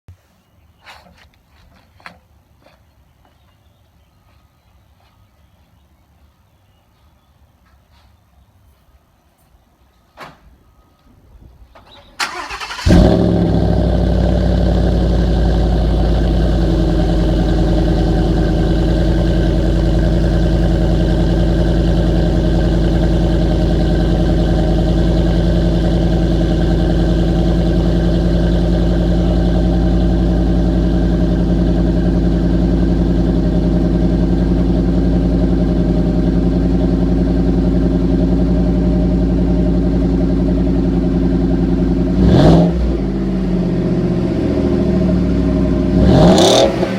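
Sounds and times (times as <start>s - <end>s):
truck engine starting and idling: 11.7s - 46.9s.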